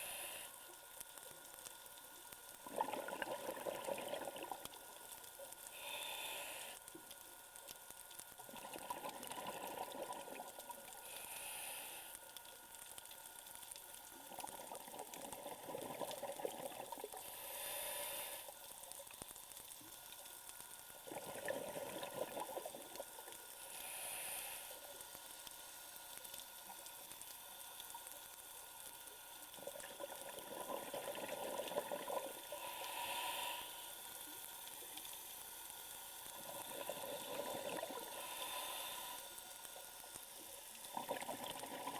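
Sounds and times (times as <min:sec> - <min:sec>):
regulator inhale hiss: 0:00.0 - 0:00.8, 0:05.6 - 0:07.2, 0:10.9 - 0:12.6, 0:17.1 - 0:18.8, 0:23.5 - 0:25.6, 0:32.2 - 0:40.5
exhaled bubbles: 0:02.6 - 0:04.9, 0:08.5 - 0:10.9, 0:14.2 - 0:17.3, 0:21.0 - 0:23.4, 0:29.6 - 0:32.7, 0:36.3 - 0:38.4, 0:40.8 - 0:41.9.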